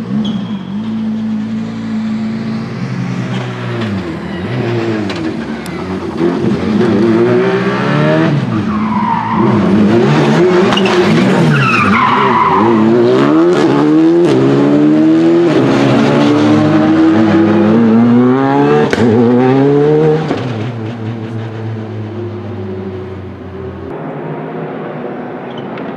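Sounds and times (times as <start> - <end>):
rally car engine revving: 0.0 - 25.9
tyres squealing: 8.4 - 13.1
exhaust cracks: 8.6 - 12.8.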